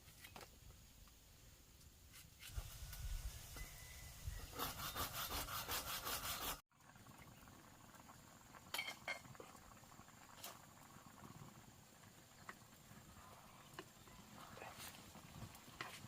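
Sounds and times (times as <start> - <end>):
rhythmic scraping strokes: 4.4 - 6.6.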